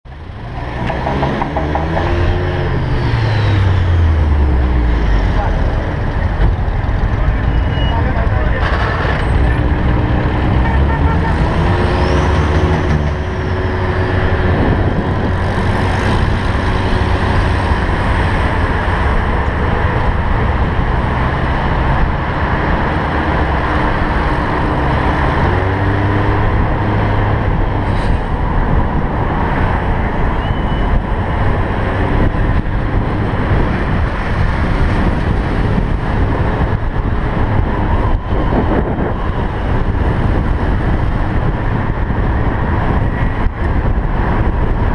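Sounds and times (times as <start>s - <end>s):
cars driving along street: 0.0s - 44.9s.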